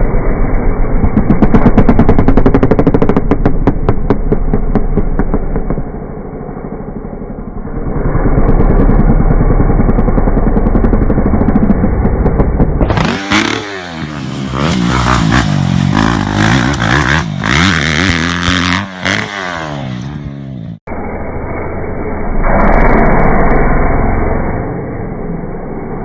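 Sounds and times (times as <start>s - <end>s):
dirt bike engines revving: 6.1s - 20.8s.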